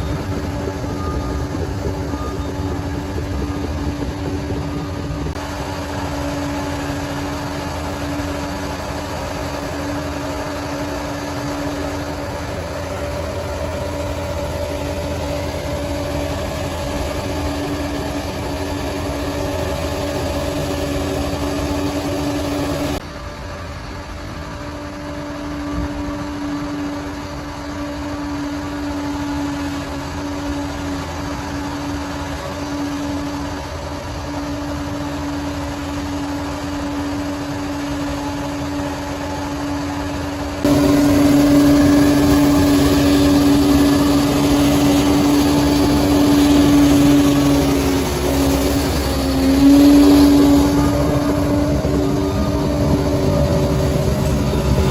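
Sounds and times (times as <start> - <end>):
bulldozer diesel engine running: 0.0 - 54.9.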